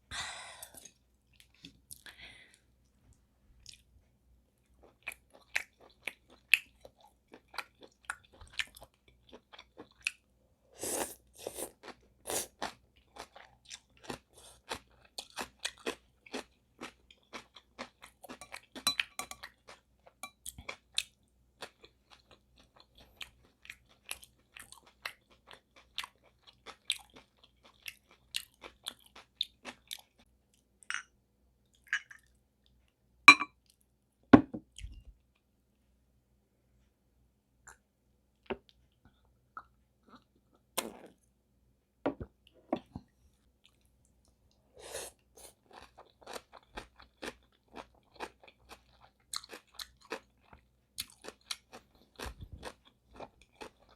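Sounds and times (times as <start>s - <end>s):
person chewing noodles: 3.6s - 3.9s, 4.7s - 10.2s, 10.8s - 30.6s, 43.6s - 53.9s.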